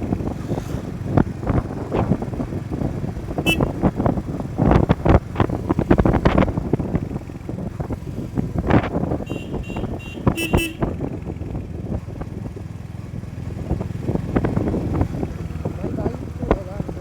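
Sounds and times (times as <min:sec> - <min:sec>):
motorcycle road noise: 0:00.0 - 0:17.0
wind buffeting: 0:00.0 - 0:17.0
vehicle horn honking: 0:03.4 - 0:03.9, 0:09.2 - 0:11.0.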